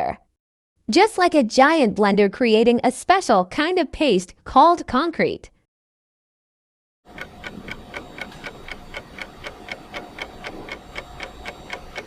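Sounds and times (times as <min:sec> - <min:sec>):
clock ticking: 0:07.1 - 0:12.0.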